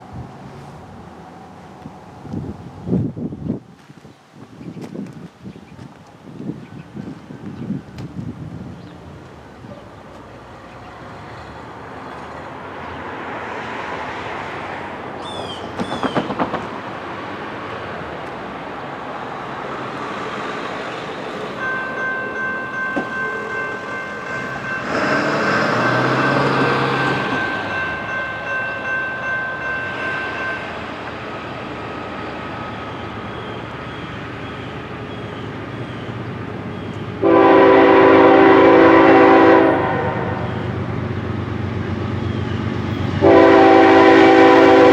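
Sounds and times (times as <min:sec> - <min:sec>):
diesel freight train approaching: 0:00.0 - 0:03.5, 0:06.7 - 0:44.9
crossing bell ringing: 0:21.4 - 0:31.1, 0:42.9 - 0:44.9
locomotive air horn: 0:37.2 - 0:40.5, 0:43.2 - 0:44.9.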